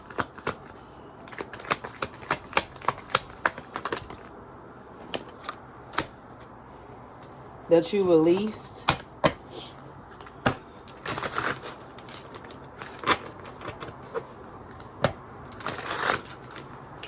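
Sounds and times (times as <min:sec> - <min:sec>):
cards snapping and tapping: 0:00.0 - 0:04.2
cards riffling: 0:00.0 - 0:04.3, 0:10.1 - 0:17.0.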